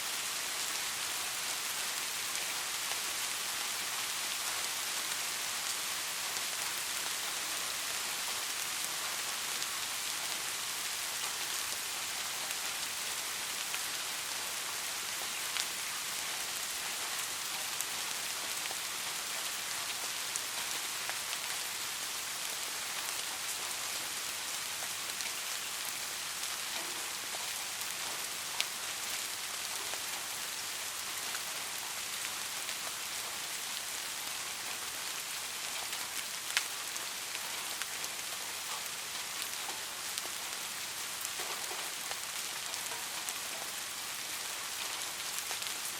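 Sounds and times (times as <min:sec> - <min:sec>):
steady rain hissing: 0:00.0 - 0:45.9.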